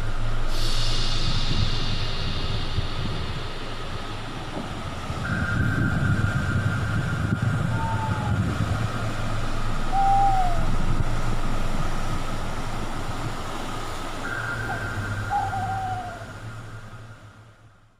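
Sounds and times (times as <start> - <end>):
ocean surf rumbling: 0.0 - 17.8
high whistle-like tone: 0.7 - 8.6, 9.9 - 11.1, 13.9 - 17.3
short whistled notes: 14.2 - 16.8.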